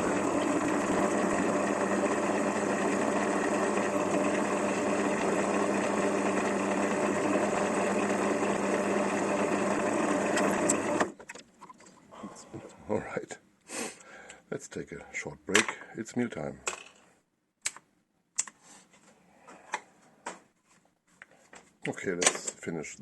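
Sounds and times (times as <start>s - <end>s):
drill press drilling aluminium: 0.0s - 11.1s.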